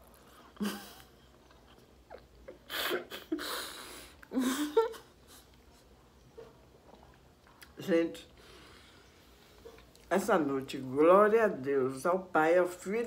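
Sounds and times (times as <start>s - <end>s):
person chewing food: 0.0s - 2.7s, 5.4s - 7.8s.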